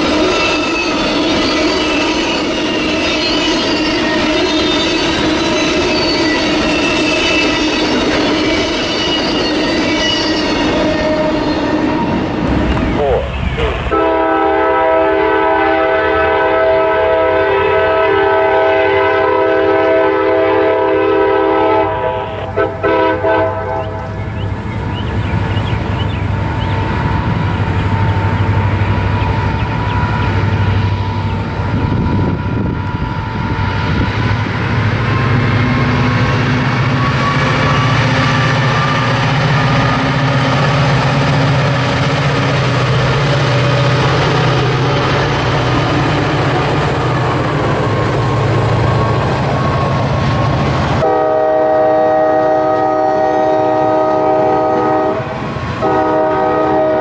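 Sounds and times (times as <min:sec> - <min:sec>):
freight cars rolling on rails: 0:00.0 - 0:18.6, 0:19.4 - 0:57.0
locomotive air horn chord: 0:13.0 - 0:24.2, 0:51.0 - 0:57.0.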